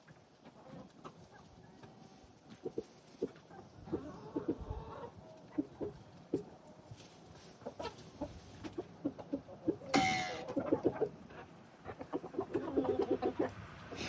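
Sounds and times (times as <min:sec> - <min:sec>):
chickens clucking: 0:00.0 - 0:14.0
chicken squawk: 0:09.9 - 0:14.0.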